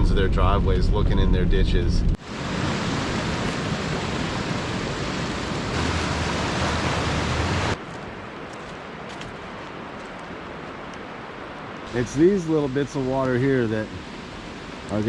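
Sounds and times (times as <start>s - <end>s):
deep rumble: 0.0s - 2.2s
heavy rain downpour: 2.2s - 15.0s.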